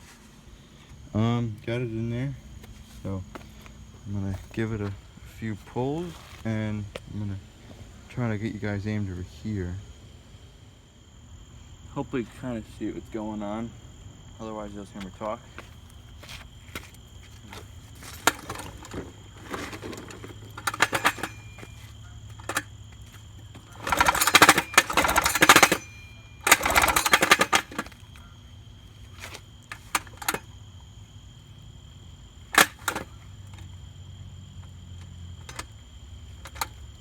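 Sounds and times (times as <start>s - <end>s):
handling clicks and knocks: 15.0s - 28.4s, 29.1s - 30.6s, 32.5s - 33.7s, 34.6s - 37.0s
recoil starter pull: 17.5s - 22.8s, 23.5s - 28.3s, 29.2s - 30.5s, 32.5s - 33.7s, 35.0s - 35.8s, 36.4s - 37.0s
outboard motor turning over: 17.6s - 28.2s.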